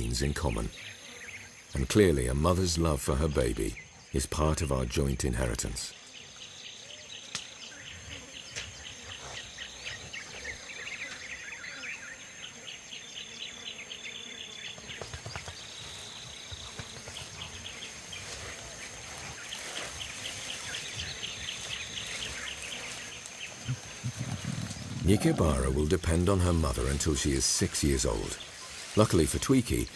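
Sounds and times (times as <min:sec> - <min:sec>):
high insect whine: 0:00.0 - 0:04.7, 0:05.3 - 0:29.9
bird calls: 0:00.0 - 0:29.9
rapid insect chirping: 0:05.2 - 0:29.9
faint rustles: 0:14.9 - 0:29.9.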